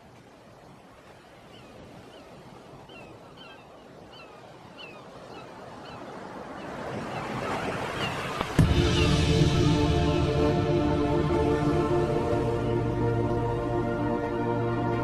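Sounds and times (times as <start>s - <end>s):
ocean surf washing: 0.0s - 15.0s.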